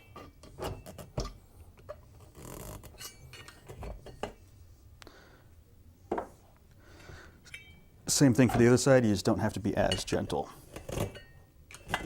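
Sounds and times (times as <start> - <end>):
light clicks and clinks: 7.4 - 7.8.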